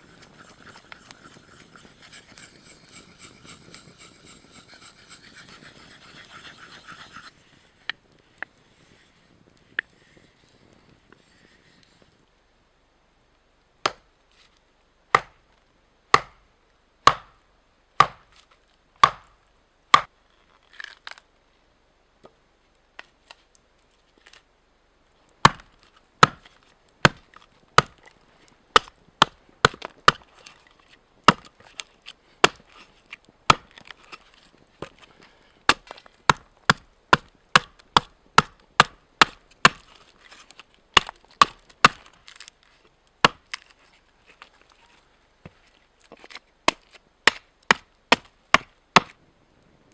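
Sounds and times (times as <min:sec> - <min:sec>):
blade chopping into wood: 0:13.9 - 0:14.1, 0:15.2 - 0:15.4, 0:16.1 - 0:16.4, 0:17.1 - 0:17.4, 0:18.0 - 0:18.4, 0:19.0 - 0:19.4, 0:25.4 - 0:28.0, 0:28.8 - 0:30.3, 0:31.3 - 0:31.5, 0:32.4 - 0:32.8, 0:33.5 - 0:34.2, 0:35.7 - 0:40.0, 0:41.0 - 0:42.2, 0:43.2 - 0:43.6, 0:46.7 - 0:49.2.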